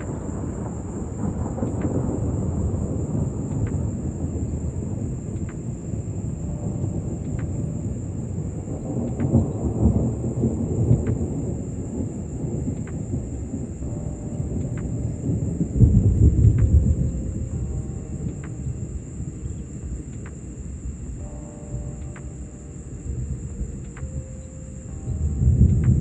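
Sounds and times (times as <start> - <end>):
rolling thunder: 0.0 - 26.0.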